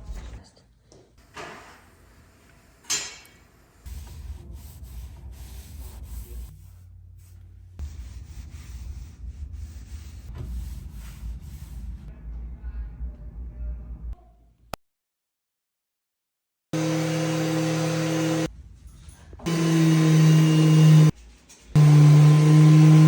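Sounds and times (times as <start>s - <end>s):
stain rubbed onto wooden steps: 3.9s - 12.0s
low rumble: 3.9s - 14.2s.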